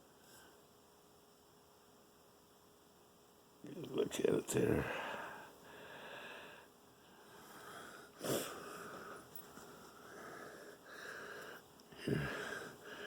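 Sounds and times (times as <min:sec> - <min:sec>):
man breathing wheezily: 0:04.8 - 0:13.0.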